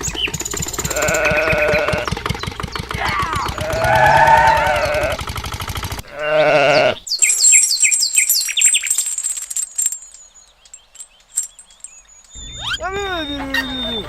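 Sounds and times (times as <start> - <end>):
fast even ticking: 0.0 - 6.1
high falling chirps: 0.0 - 14.0
wavering bleat: 0.8 - 2.1, 3.0 - 5.2, 6.0 - 7.0.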